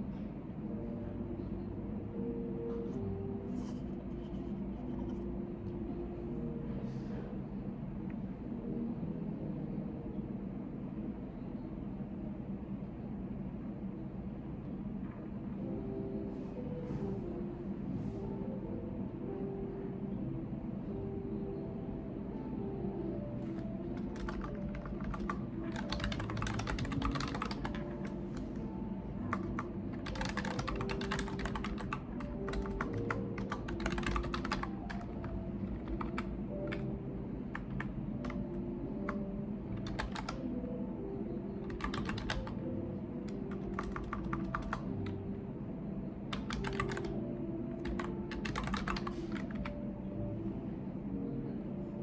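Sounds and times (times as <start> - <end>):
computer keyboard typing: 23.5 - 36.9, 37.5 - 40.5, 41.6 - 45.2, 46.3 - 47.2, 47.8 - 49.8.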